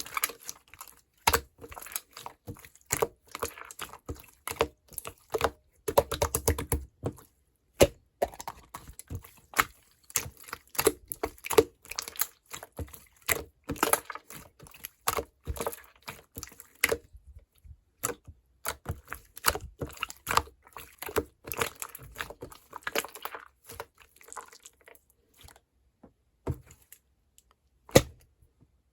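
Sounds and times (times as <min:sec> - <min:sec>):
sticky slime pops and crackles: 0:27.9 - 0:28.2.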